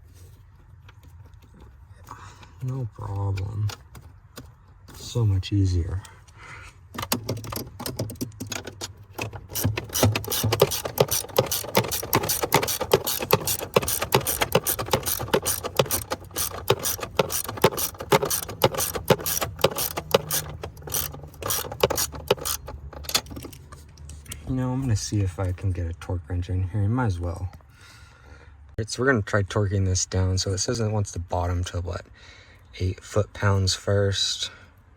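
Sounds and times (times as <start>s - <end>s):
ratchet wrench clicking: 7.0s - 24.1s.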